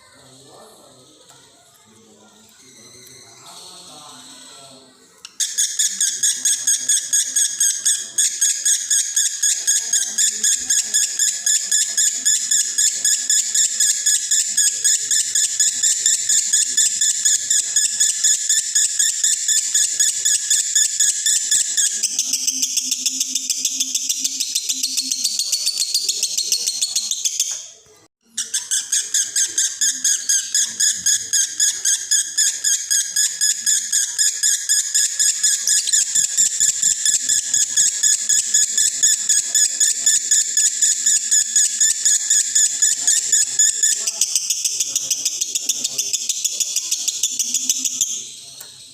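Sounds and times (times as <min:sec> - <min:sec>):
lovebird chattering high chirps: 0:05.2 - 0:48.9.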